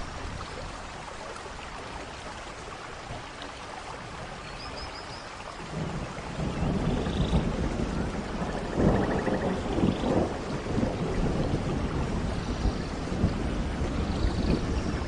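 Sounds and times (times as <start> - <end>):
steady rain: 0.0 - 15.0
thunder rumbling: 5.6 - 15.0.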